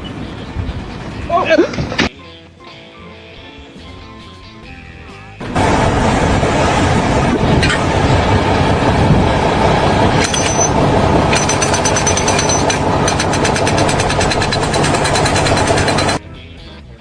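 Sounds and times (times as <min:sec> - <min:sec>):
fast even rattle: 0:05.4 - 0:16.2
heavy machinery running: 0:05.4 - 0:16.2
thin high whine: 0:05.4 - 0:16.2.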